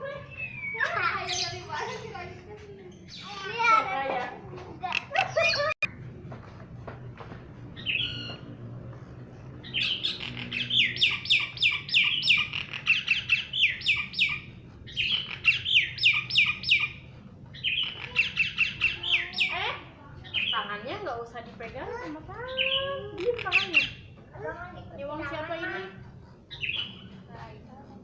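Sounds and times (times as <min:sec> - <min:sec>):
bird chirping: 0:00.0 - 0:03.7, 0:07.8 - 0:08.6, 0:09.5 - 0:21.0, 0:21.9 - 0:24.2, 0:25.0 - 0:27.2.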